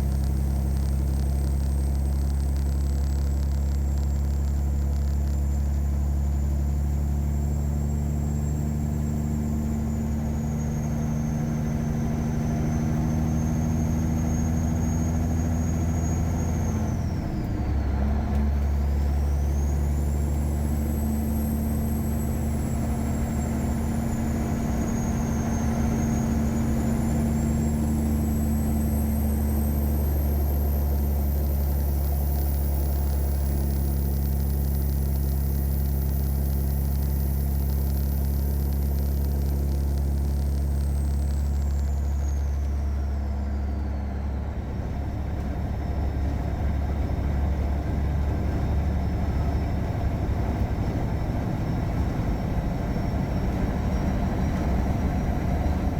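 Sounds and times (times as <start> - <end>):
truck diesel engine droning: 0.0 - 55.9.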